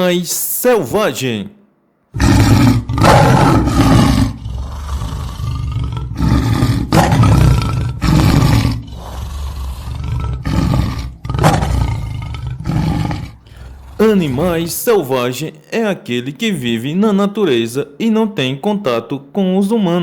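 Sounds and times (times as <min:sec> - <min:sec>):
big cat roaring: 0:02.1 - 0:15.1.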